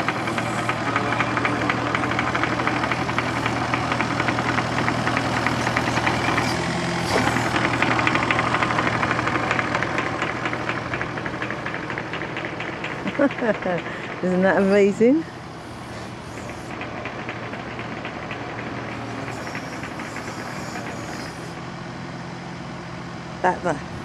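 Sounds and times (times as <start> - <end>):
machine engine running: 0.0 - 22.8
fast knocking rattle: 7.5 - 14.2, 16.7 - 20.9.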